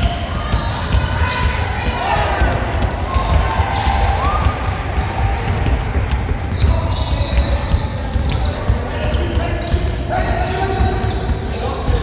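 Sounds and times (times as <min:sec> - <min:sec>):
basketball bouncing on gym floor: 0:00.0 - 0:12.0
echoing court noise: 0:00.0 - 0:12.0
shoe squeaks: 0:04.4 - 0:05.6, 0:06.2 - 0:12.0.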